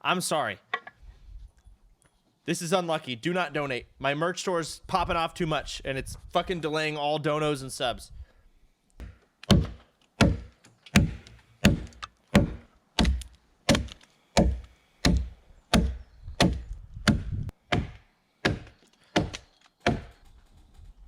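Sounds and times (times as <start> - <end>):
hand tool striking wooden log: 9.0 - 20.1.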